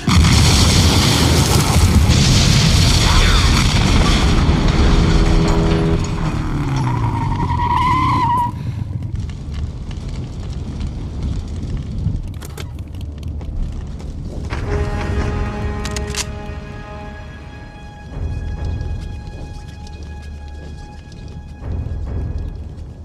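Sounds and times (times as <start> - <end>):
low rumble: 0.1 - 23.0
wavering tyre squeal: 6.8 - 8.6.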